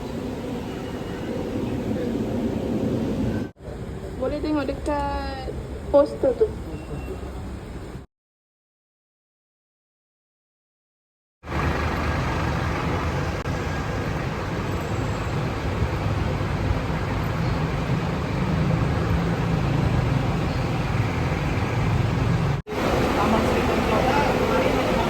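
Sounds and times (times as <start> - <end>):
road vehicles rumbling: 0.0 - 8.1, 11.4 - 25.0.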